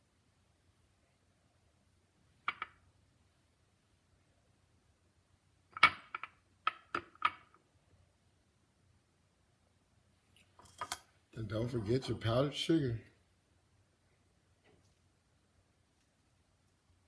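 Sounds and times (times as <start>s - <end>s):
kitchenware clicks and taps: 10.6s - 11.1s.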